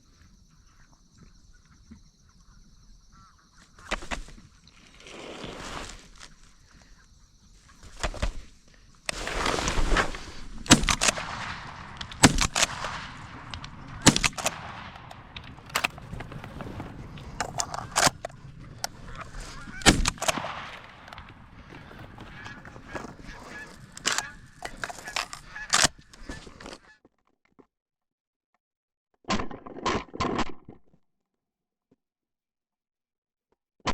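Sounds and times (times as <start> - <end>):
geese honking: 0.6 - 26.9.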